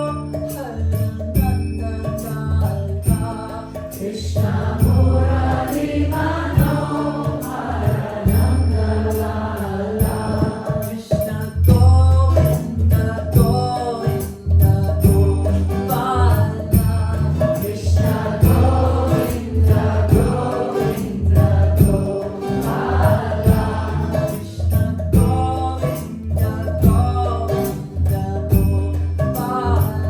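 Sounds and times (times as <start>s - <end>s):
pulsing deep beat: 3.0s - 13.9s, 14.6s - 25.8s, 26.4s - 29.1s
voices singing devotional chant: 3.4s - 11.4s, 15.8s - 26.0s.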